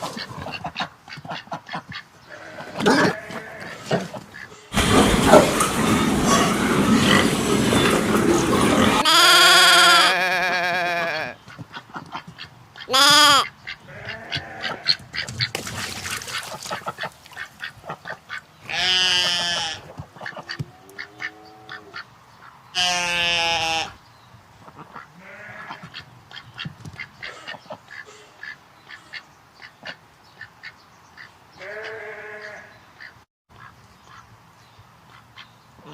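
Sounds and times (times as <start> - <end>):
goats bleating: 2.3 - 4.9, 8.9 - 11.4, 12.9 - 15.0, 18.7 - 21.9, 22.8 - 24.0, 25.2 - 25.9, 31.6 - 32.7.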